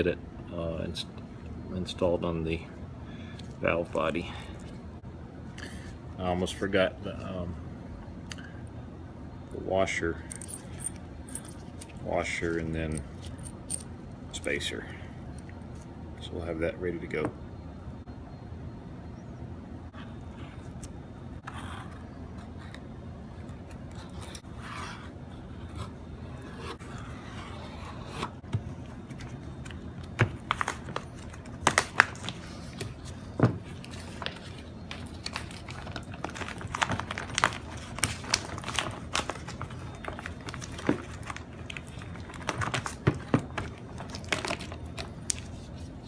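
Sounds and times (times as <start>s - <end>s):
steady low hum: 0.0s - 46.0s
metal parts clicking and clinking: 10.3s - 12.0s, 12.9s - 13.9s
scraping and crinkling: 20.4s - 46.0s.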